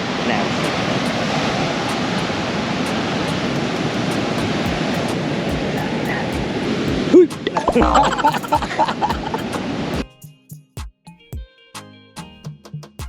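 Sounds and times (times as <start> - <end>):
ocean surf washing on beach: 0.0 - 10.0.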